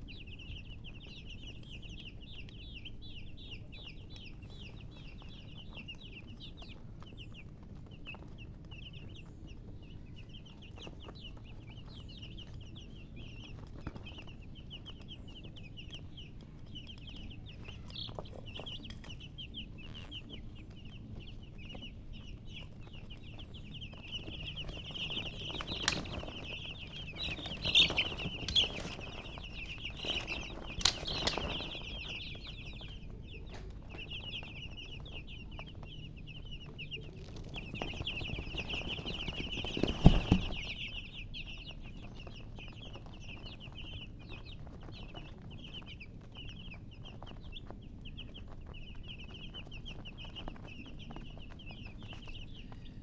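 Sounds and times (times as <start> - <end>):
baby chicks peeping: 0.0 - 53.0.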